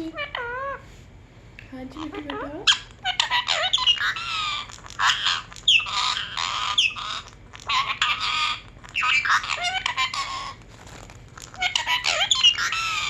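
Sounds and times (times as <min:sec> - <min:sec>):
parrot squawking: 0:00.0 - 0:00.9, 0:02.0 - 0:13.0.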